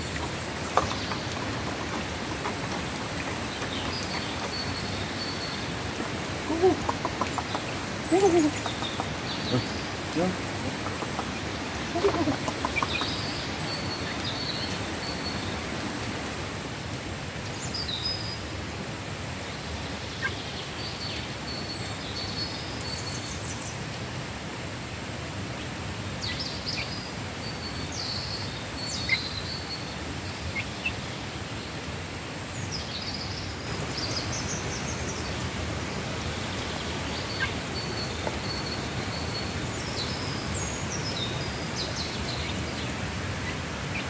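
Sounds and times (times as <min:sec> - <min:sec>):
birds chirping and peeping: 0:00.0 - 0:15.9.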